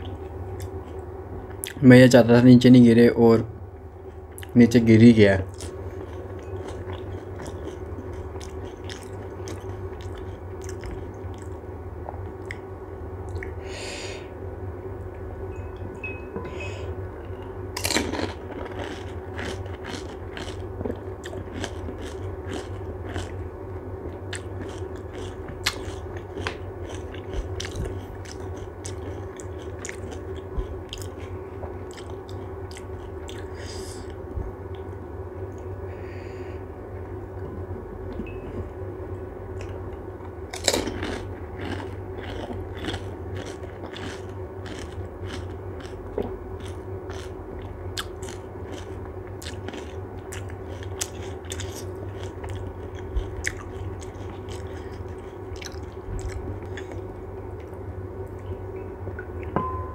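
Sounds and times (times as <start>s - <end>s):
crunchy food chewing: 5.5s - 13.6s, 17.8s - 23.5s, 24.1s - 34.8s, 39.5s - 58.6s.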